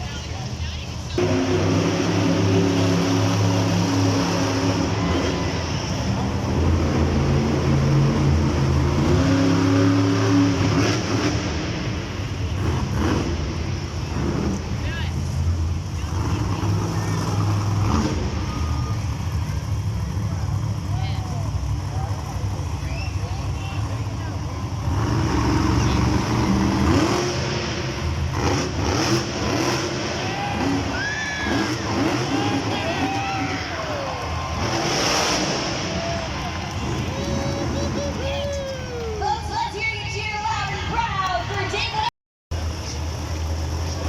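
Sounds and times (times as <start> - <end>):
monster truck engine running: 0.0 - 44.0.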